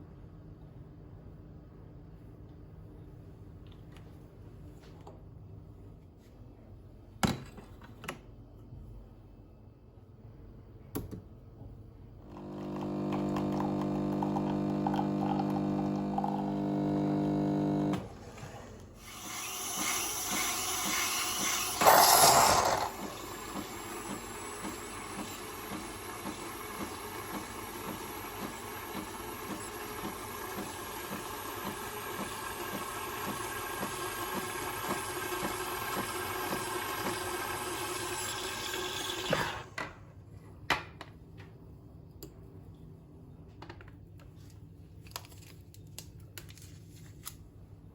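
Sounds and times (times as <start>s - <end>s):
small appliance motor humming: 12.2s - 18.1s, 19.0s - 39.7s.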